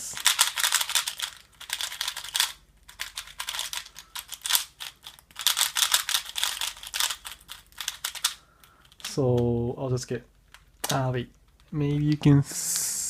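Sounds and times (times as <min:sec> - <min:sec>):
speedcube plastic clicks: 0:00.2 - 0:09.1.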